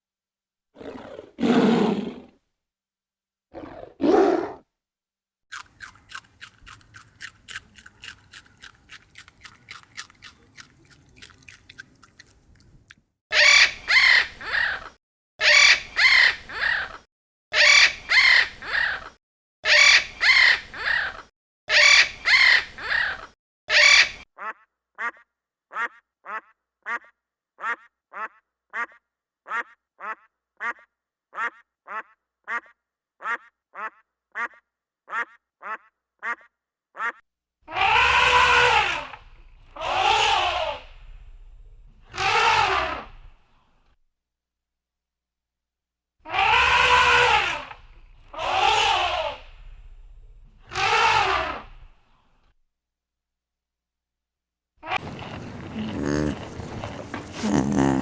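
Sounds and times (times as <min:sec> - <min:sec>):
loud animal calls: 0:55.0 - 0:58.0
low roar-like animal calls: 0:55.0 - 0:58.0.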